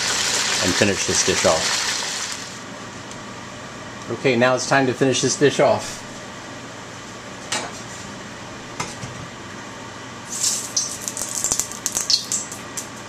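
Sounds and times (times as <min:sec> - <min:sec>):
oil sizzling in a wok: 0:00.0 - 0:02.6, 0:10.3 - 0:12.6.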